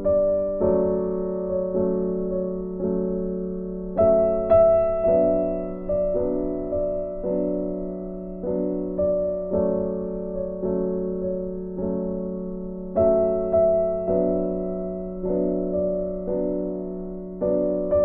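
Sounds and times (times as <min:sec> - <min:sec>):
soft piano chords: 0:00.0 - 0:18.0.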